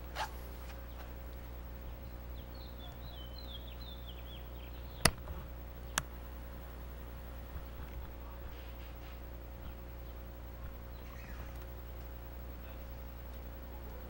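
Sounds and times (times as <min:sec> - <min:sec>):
steady low hum: 0:00.0 - 0:14.0
sharp clicks: 0:05.0 - 0:06.1.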